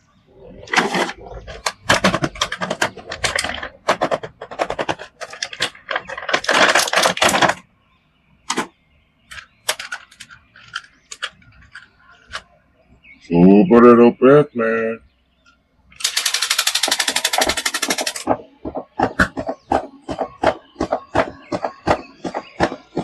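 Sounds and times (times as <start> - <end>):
plastic clicking and clattering: 0.6 - 7.7, 8.5 - 12.5, 16.0 - 23.0.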